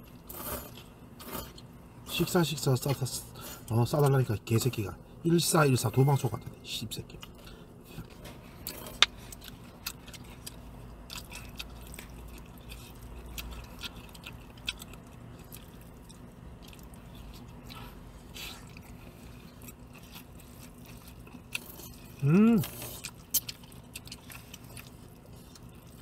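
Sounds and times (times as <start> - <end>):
low steady hum: 0.0 - 26.0
chewing and eating: 7.1 - 26.0.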